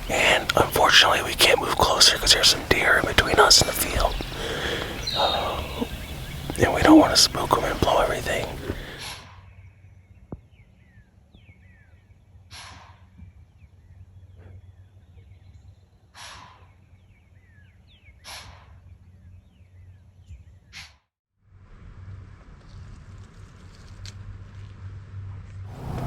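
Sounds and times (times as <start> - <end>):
songbird chirps: 0.0 - 9.2.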